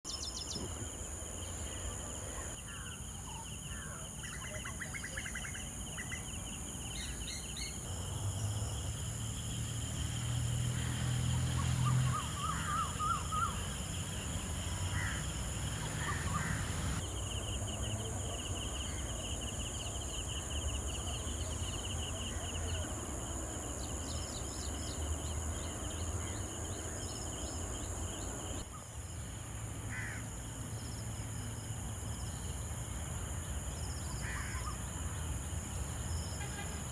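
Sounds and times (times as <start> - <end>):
birds chirping: 11.3 - 28.6.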